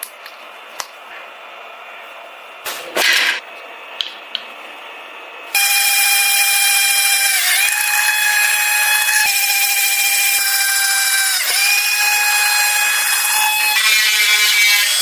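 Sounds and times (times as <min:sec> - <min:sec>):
electric power tool whining: 0:05.5 - 0:15.0.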